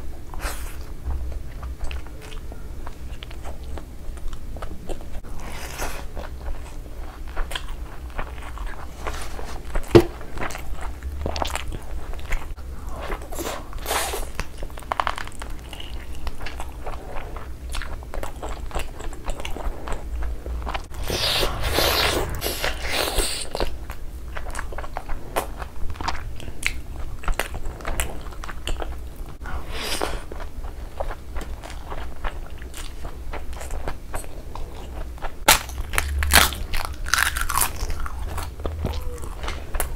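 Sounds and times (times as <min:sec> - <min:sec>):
close chewing and mouth sounds: 0:00.0 - 0:39.9
crunchy biting: 0:35.5 - 0:39.9.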